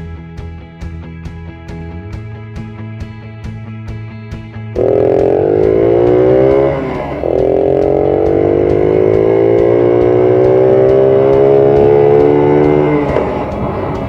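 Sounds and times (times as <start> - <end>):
motorcycle engine revving: 4.7 - 14.0.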